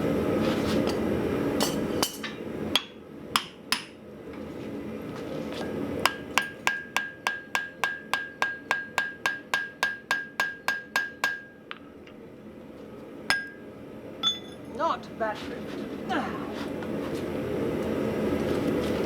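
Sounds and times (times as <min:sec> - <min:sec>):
hammer ringing on anvil: 0:06.1 - 0:11.7, 0:13.3 - 0:13.6, 0:14.2 - 0:14.6.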